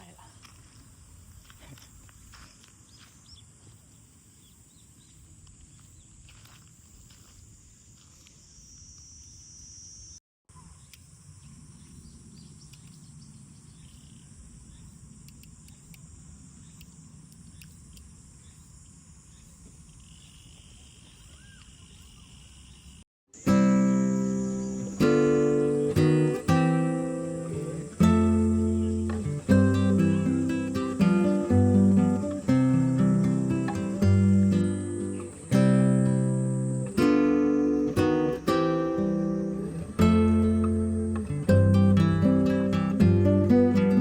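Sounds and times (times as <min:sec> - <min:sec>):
high-pitched insect chorus: 0:00.0 - 0:44.0.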